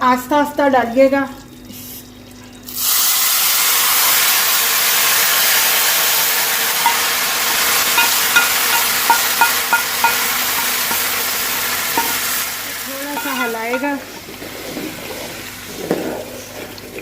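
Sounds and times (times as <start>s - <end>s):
hot oil sizzling: 0.9s - 17.0s
light metallic clinks: 8.0s - 11.1s, 12.0s - 12.2s, 13.2s - 14.2s.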